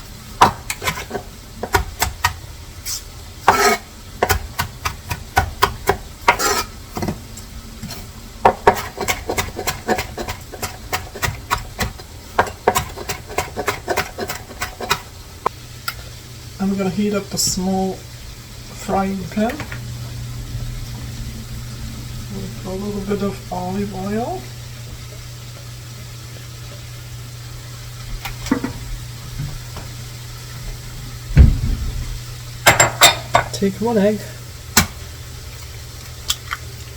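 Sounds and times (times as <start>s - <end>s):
faint stove hum: 0.0s - 36.9s
oil sizzling in a frying pan: 0.0s - 36.9s
loud dull thump: 31.3s - 32.1s.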